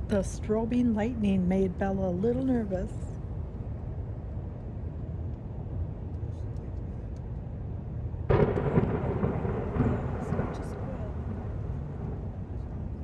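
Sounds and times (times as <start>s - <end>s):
low rumble of thunder: 7.8s - 13.0s
loud crack of thunder: 8.3s - 13.0s.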